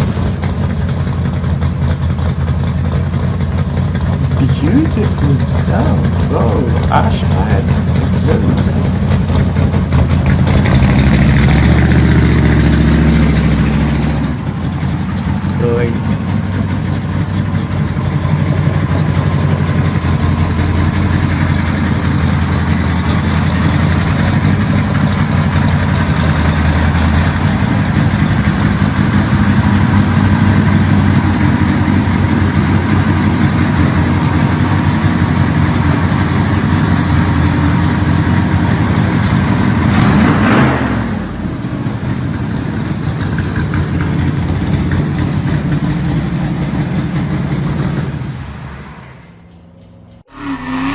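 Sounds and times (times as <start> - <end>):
car engines rumbling: 0.0 - 50.9
car sweeping past: 50.3 - 50.9.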